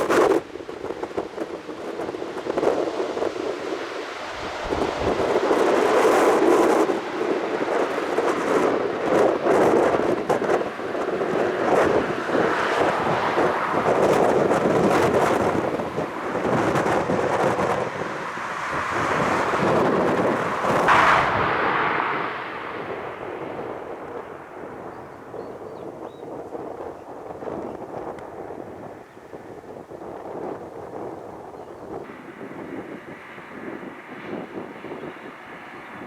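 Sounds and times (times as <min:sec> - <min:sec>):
wind buffeting microphone: 0:00.0 - 0:36.0
jet engine rumble: 0:04.2 - 0:27.4.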